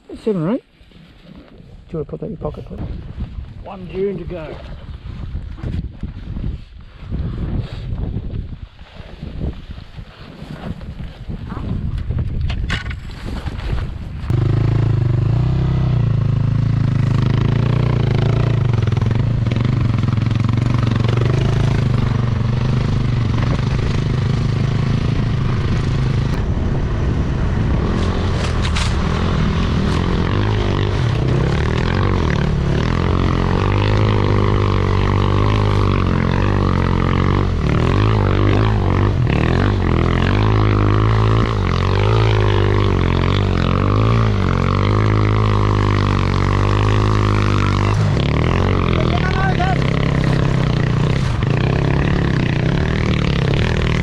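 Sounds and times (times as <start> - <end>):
didgeridoo drone: 14.3 - 54.0.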